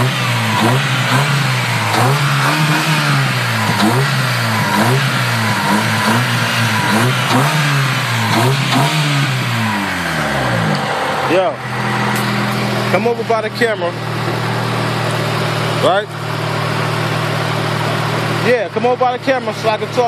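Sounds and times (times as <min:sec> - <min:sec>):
car engine revving in blips: 0:00.0 - 0:13.4.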